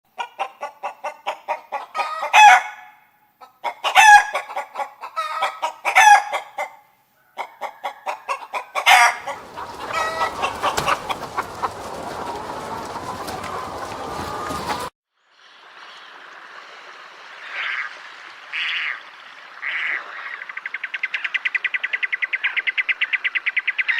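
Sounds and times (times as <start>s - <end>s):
chicken clucking: 0.2s - 2.8s, 3.4s - 14.9s.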